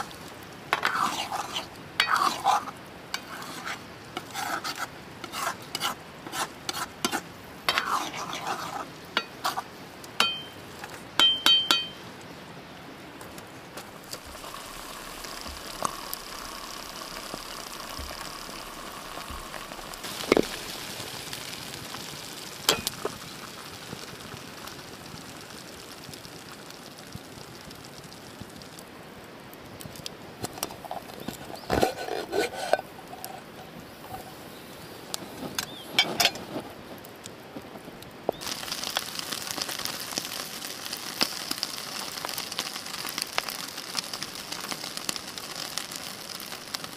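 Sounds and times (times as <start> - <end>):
food frying: 0.0 - 12.0, 14.0 - 29.0, 38.3 - 46.9
utensils clinking against a wok: 2.0 - 2.4, 10.2 - 10.6, 11.2 - 12.0, 22.7 - 23.1, 35.6 - 36.5.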